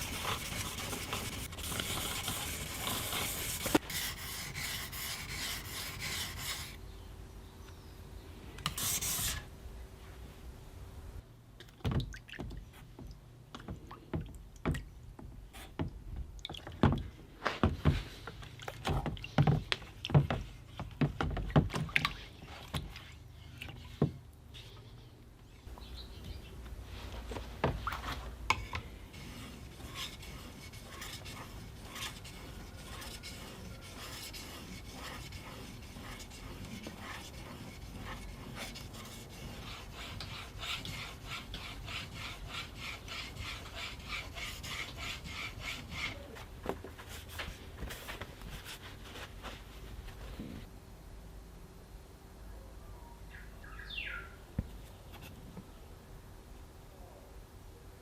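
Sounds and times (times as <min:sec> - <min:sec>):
rubbing strokes on knife: 0:00.0 - 0:06.8, 0:28.6 - 0:46.4.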